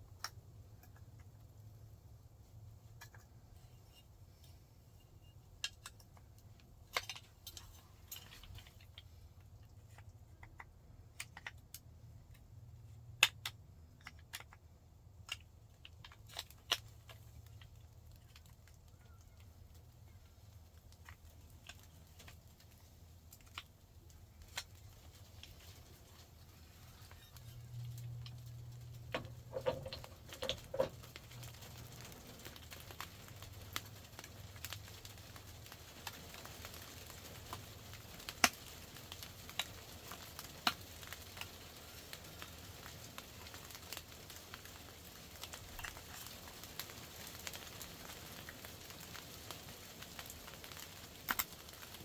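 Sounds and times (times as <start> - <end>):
faint low hum: 0.0 - 36.0
hand tools clicking and tapping: 29.0 - 31.2.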